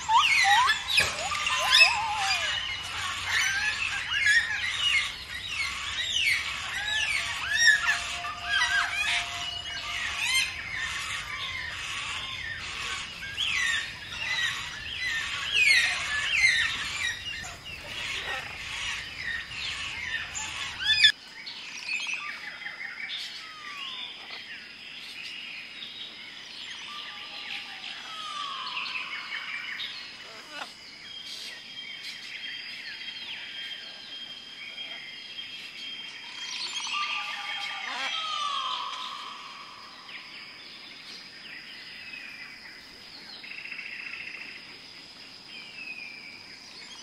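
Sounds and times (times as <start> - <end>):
birds chirping and whistling: 0.0 - 21.2, 35.7 - 42.3.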